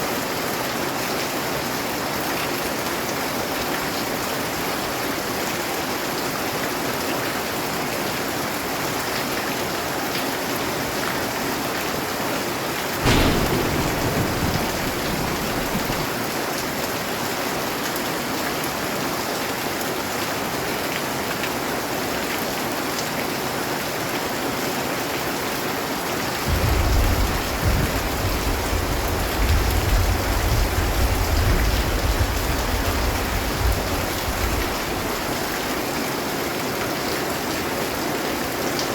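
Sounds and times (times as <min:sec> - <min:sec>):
steady rain falling: 0:00.0 - 0:38.9
rolling thunder rumble: 0:13.0 - 0:16.3, 0:26.4 - 0:35.8
thunder crack: 0:13.0 - 0:16.3, 0:26.4 - 0:35.8.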